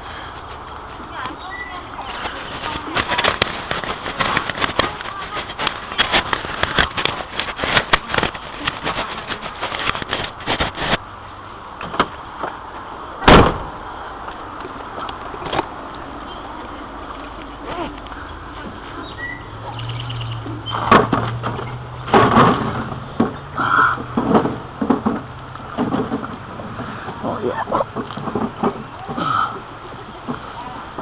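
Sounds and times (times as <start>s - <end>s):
loud thump: 13.2s - 13.8s.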